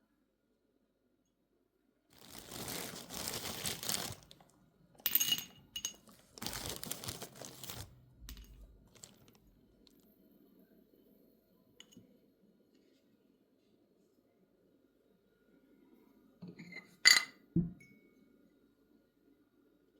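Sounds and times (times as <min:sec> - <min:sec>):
crinkling rustle: 0:02.1 - 0:04.5, 0:05.9 - 0:10.0.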